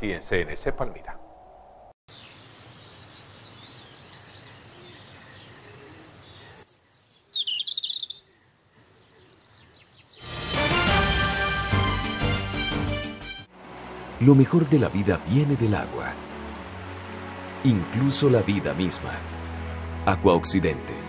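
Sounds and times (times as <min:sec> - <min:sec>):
birds chirping and calling: 0:02.1 - 0:10.2
loud music: 0:10.2 - 0:13.5
outdoor hiss: 0:10.2 - 0:20.7.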